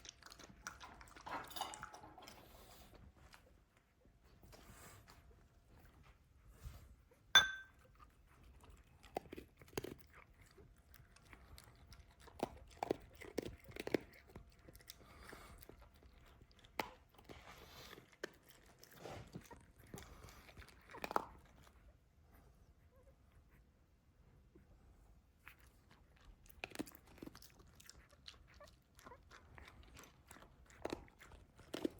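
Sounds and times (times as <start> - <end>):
dog chewing and crunching food: 0.0 - 6.2, 7.1 - 22.5, 25.2 - 31.9
sharp clink: 7.4 - 7.7.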